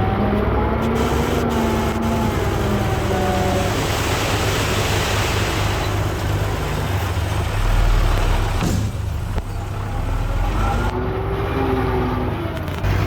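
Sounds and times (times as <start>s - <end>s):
diesel engine low rumble: 0.0s - 13.0s.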